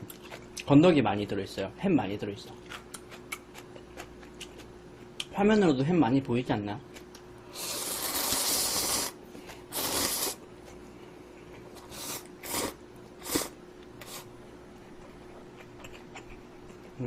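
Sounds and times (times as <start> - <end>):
person slurping noodles: 7.5 - 10.4, 11.8 - 14.3.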